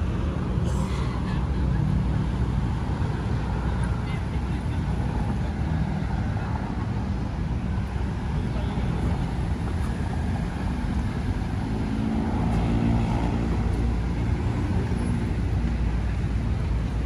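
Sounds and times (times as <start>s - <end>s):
road traffic rumble: 0.0s - 17.0s
vehicle engine passing: 9.0s - 16.8s.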